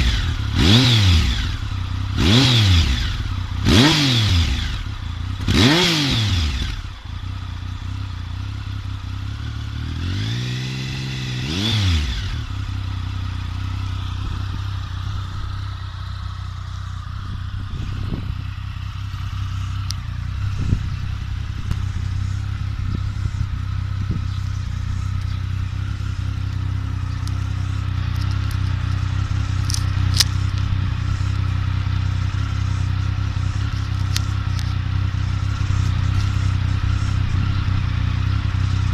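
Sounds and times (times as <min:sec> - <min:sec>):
motorcycle engine revving and idling: 0:00.0 - 0:38.9
faint engine ticks: 0:12.2 - 0:38.9.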